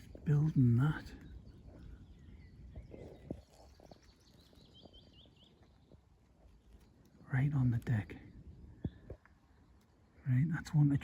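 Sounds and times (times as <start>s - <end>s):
small bird singing: 0.0s - 11.0s
soft rustling: 1.2s - 8.0s.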